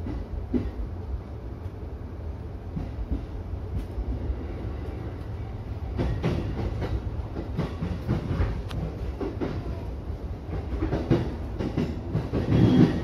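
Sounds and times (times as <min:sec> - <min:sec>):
train rumble: 0:00.0 - 0:13.0
wheels clacking over rail joints: 0:05.8 - 0:13.0.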